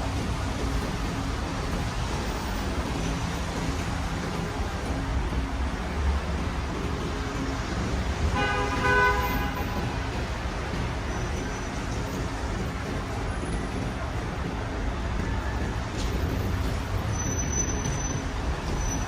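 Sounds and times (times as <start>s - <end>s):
city street traffic: 0.0s - 19.0s
car horn blast: 8.3s - 10.0s.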